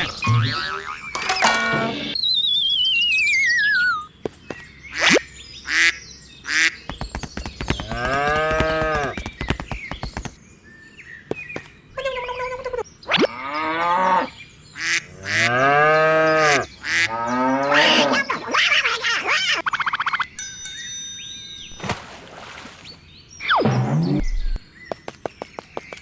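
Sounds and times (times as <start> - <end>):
cow mooing: 15.2 - 18.2.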